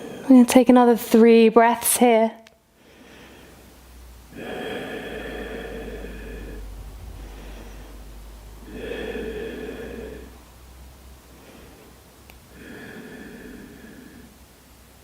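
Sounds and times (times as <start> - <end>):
person breathing deeply: 0.0 - 0.3, 2.7 - 3.7, 4.3 - 10.5, 11.2 - 14.5
faint low hum: 0.0 - 15.0.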